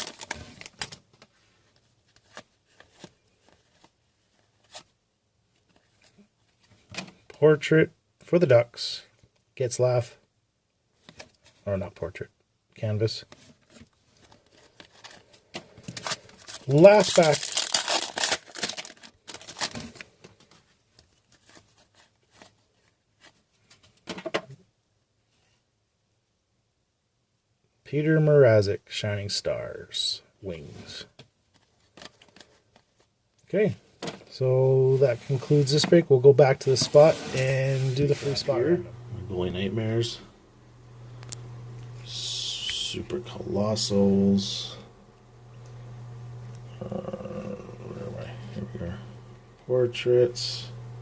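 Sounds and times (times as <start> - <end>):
wrapper crinkling: 0.0 - 1.3, 14.2 - 20.6
cards rustling: 0.0 - 7.2, 13.3 - 24.1, 30.8 - 33.1, 34.9 - 39.1.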